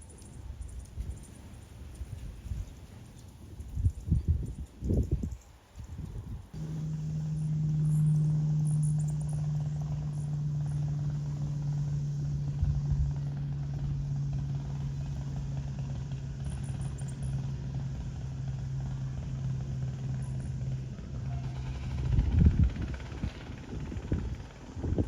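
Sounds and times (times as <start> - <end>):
steady low hum: 3.6 - 25.0
hummingbird chirps: 6.6 - 20.7.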